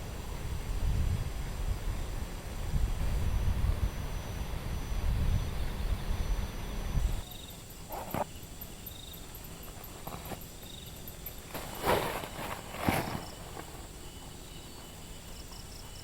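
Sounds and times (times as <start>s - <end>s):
wind rumble on microphone: 0.0s - 7.2s
insects chirping: 1.8s - 16.0s
rustling: 9.6s - 15.6s.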